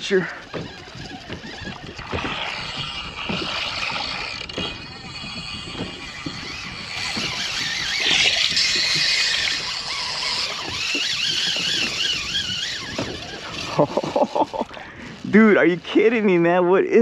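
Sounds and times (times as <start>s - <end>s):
fishing reel drag screaming: 0.0s - 16.8s.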